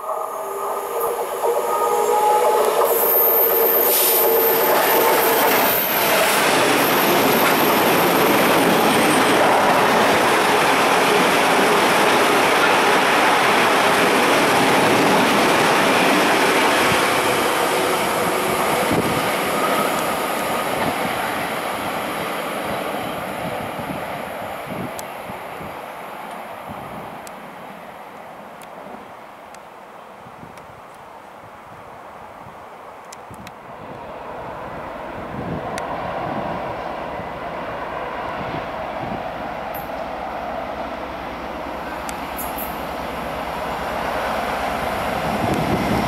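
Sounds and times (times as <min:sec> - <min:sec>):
diesel locomotive engine: 0:00.0 - 0:28.2, 0:33.8 - 0:46.0
train wheels clattering on rail: 0:01.1 - 0:21.9, 0:41.8 - 0:42.9.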